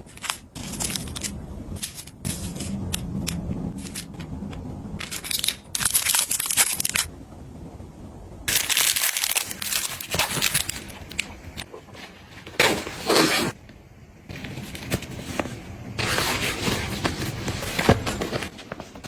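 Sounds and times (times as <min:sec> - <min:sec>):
packaging rustling and crinkling: 0:08.5 - 0:13.6, 0:14.3 - 0:19.0.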